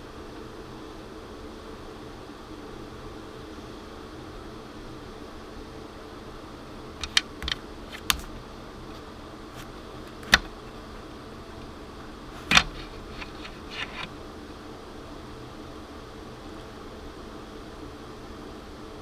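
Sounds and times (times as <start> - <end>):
steady hiss: 0.0 - 19.0
sharp clicks and knocks: 7.0 - 8.4, 10.0 - 11.7, 12.4 - 14.1.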